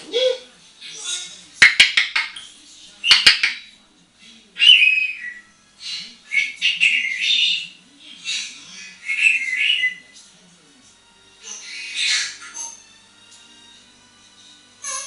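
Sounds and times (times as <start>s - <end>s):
parrot whistles and squawks: 4.6s - 10.2s, 11.4s - 12.9s, 14.8s - 15.0s.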